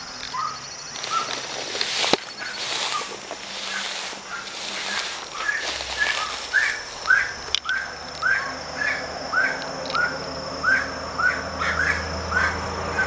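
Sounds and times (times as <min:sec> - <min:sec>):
bird whistled call: 0:03.7 - 0:13.0.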